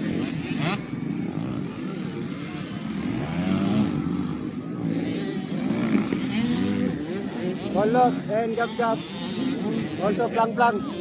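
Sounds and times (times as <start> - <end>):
motocross bikes racing: 0.0 - 11.0.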